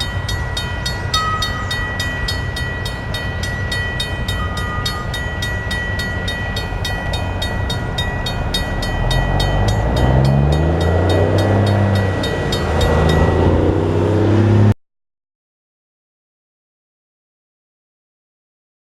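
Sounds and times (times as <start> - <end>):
railroad crossing bell ringing: 0.0 - 14.7
diesel locomotive engine rumbling: 0.0 - 14.8.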